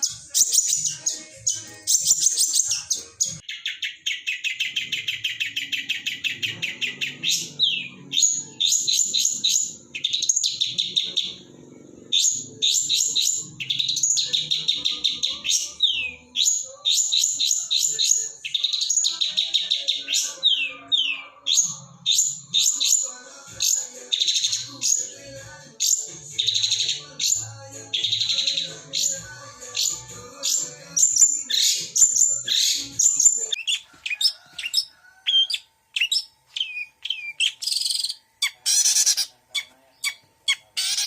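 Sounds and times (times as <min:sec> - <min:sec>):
rapid repeated bird chirps: 0:00.0 - 0:11.5, 0:12.1 - 0:41.0
bird singing varied song: 0:00.0 - 0:41.0.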